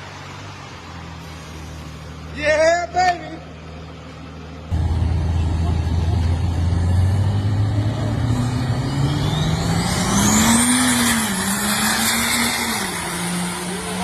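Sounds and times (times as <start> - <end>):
truck engine accelerating: 0.0 - 14.0
high whine: 4.7 - 11.7.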